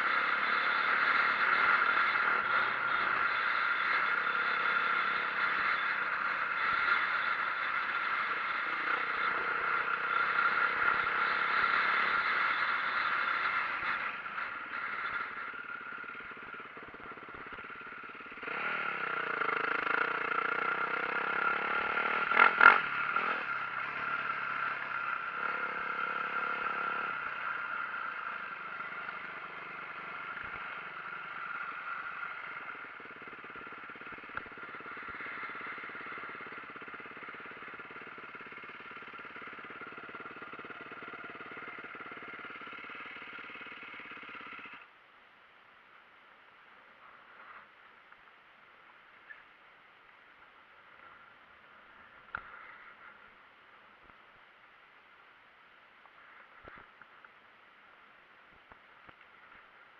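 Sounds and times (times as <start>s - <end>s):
dirt bike engine revving: 0.0s - 44.8s.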